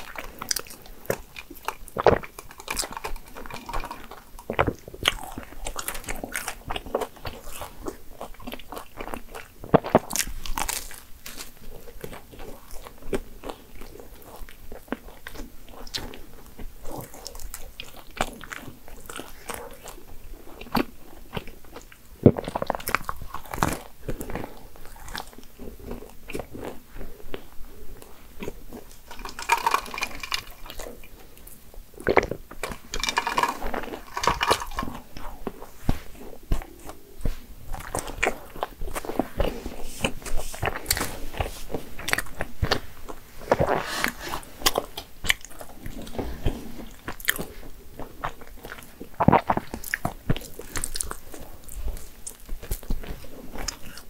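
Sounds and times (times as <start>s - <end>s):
crackling bites of pastry: 0.0s - 26.8s, 28.4s - 35.7s
sipping through a straw: 43.5s - 44.9s.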